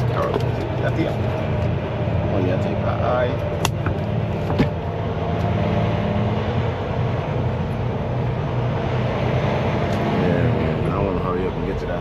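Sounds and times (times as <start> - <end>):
diesel truck engine droning: 0.0 - 12.0.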